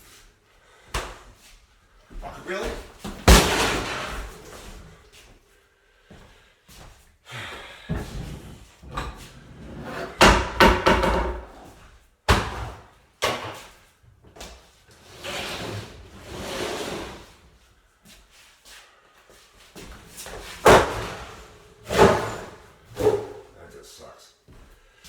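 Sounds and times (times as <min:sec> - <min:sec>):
axe hitting refrigerator: 0:03.1 - 0:04.4, 0:12.3 - 0:13.5, 0:20.6 - 0:21.3, 0:21.9 - 0:23.4
heavy crashing: 0:03.3 - 0:04.5.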